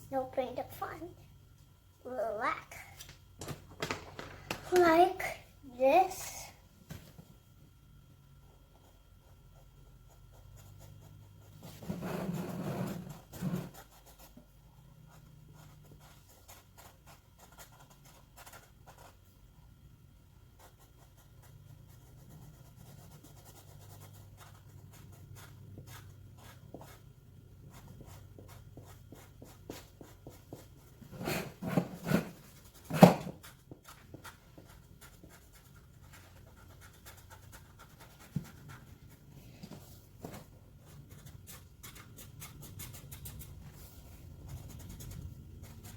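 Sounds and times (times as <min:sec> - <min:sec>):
drawing tool scratching on paper: 0:10.4 - 0:14.4, 0:27.7 - 0:39.2.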